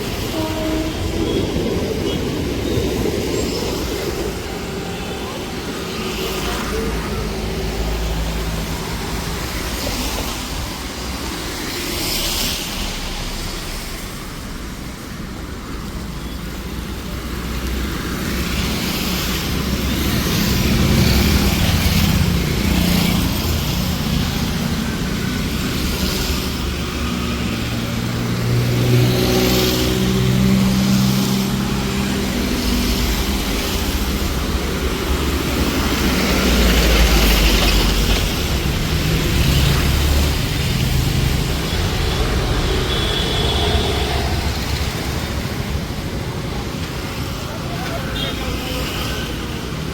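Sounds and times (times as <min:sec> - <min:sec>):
traffic passing on street: 0:00.0 - 0:49.9.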